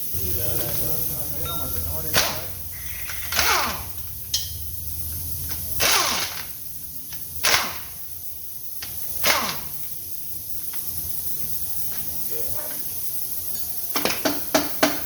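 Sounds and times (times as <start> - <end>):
pneumatic impact wrench bursts: 2.0 - 10.2.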